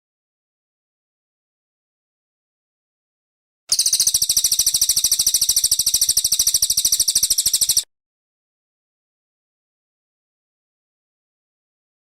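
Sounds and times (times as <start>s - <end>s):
songbird high-pitched trill: 3.7s - 7.9s.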